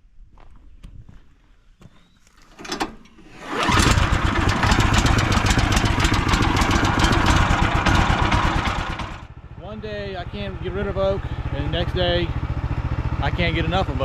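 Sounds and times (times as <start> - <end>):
small engine starting and running: 2.6 - 9.3.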